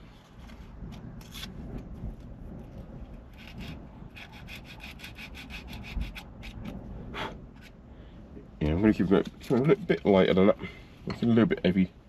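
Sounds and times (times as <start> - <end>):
sandpaper rubbing strokes: 3.3 - 6.6.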